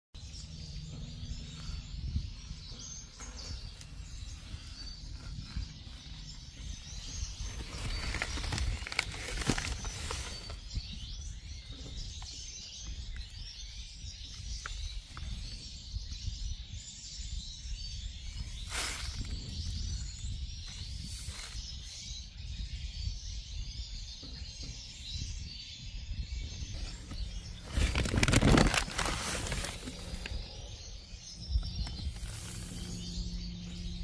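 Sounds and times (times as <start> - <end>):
low background rumble: 0.2 - 21.2, 26.3 - 34.0
small birds chirping: 0.2 - 34.0
birdseed rustling in sack: 7.3 - 10.7, 18.6 - 19.7, 26.8 - 30.8, 31.6 - 33.8.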